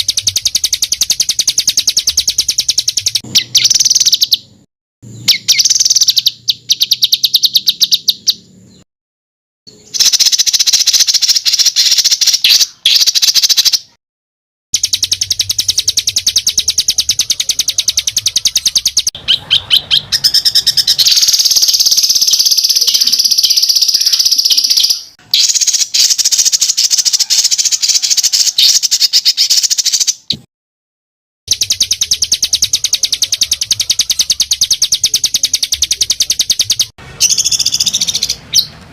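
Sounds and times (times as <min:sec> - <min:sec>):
songbird rattling trills: 0:00.0 - 0:04.4, 0:09.9 - 0:13.8, 0:14.8 - 0:30.2, 0:31.5 - 0:38.7.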